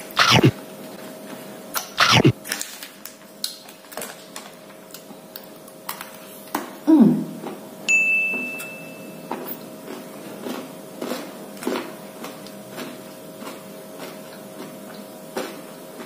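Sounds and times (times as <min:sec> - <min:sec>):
high steady tone: 0:00.1 - 0:00.5, 0:02.0 - 0:02.4
crunchy chewing: 0:09.8 - 0:16.0.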